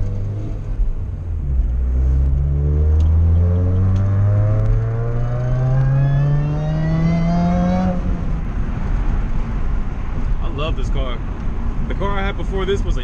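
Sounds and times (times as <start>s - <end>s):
car engine accelerating hard: 0.0s - 8.4s.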